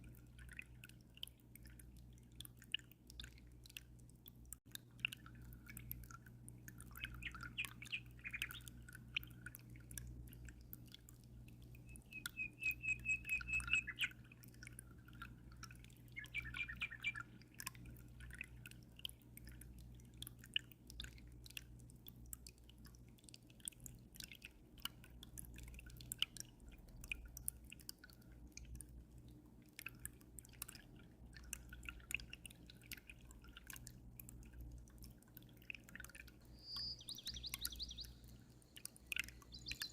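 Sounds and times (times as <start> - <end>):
aquarium water dripping: 0.0 - 39.9
small bird chirping: 7.0 - 8.8, 11.8 - 14.2, 16.1 - 17.3, 36.5 - 39.9.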